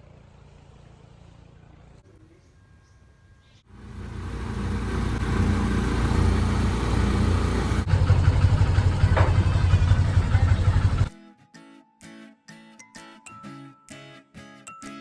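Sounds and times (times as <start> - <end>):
vehicle engine running: 3.7 - 11.1.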